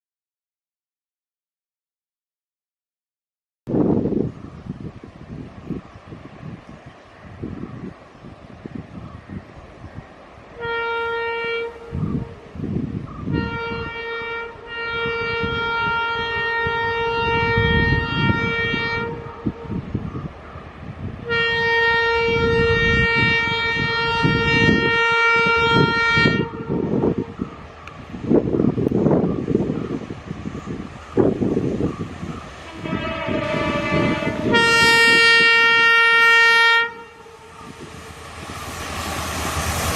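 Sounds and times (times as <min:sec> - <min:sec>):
freight train rumble: 0:03.7 - 0:39.9
locomotive air horn blasts: 0:10.6 - 0:12.5, 0:13.2 - 0:19.8, 0:21.2 - 0:27.3, 0:32.6 - 0:39.9.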